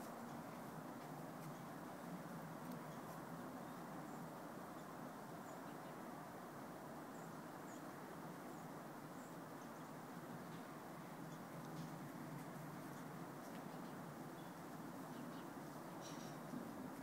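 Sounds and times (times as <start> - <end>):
faint background hiss: 0.0 - 17.0
faint bird chirps: 12.8 - 16.5.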